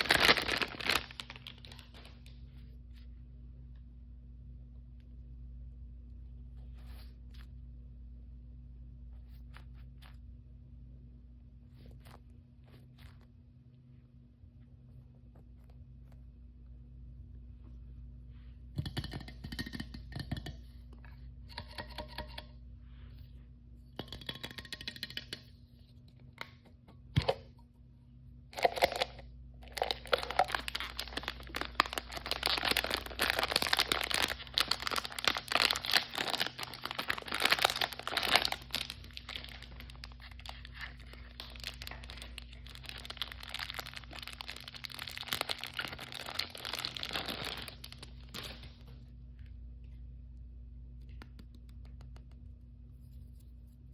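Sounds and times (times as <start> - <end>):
plastic packaging crinkling: 0.0 - 2.4, 28.6 - 48.9.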